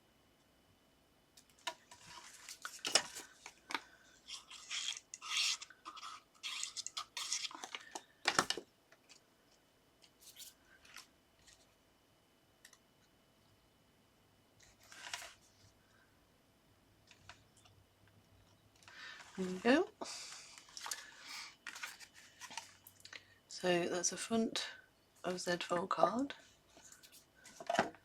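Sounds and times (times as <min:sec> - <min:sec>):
paper scraping and rustling: 0:01.9 - 0:03.6, 0:04.3 - 0:08.5, 0:14.6 - 0:15.6, 0:20.5 - 0:22.8.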